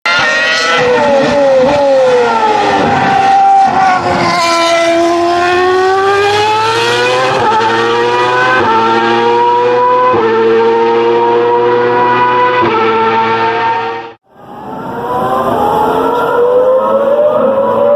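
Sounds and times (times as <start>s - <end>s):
racing engine at high revs: 0.1s - 17.9s.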